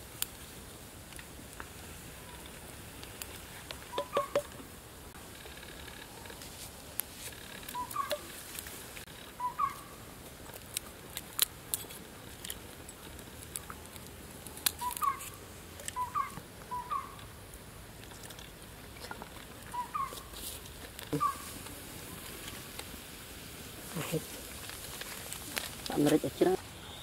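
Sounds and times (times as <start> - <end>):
short chirping bird calls: 3.9 - 4.5, 7.6 - 8.3, 9.3 - 10.0, 14.8 - 17.2, 19.7 - 20.3.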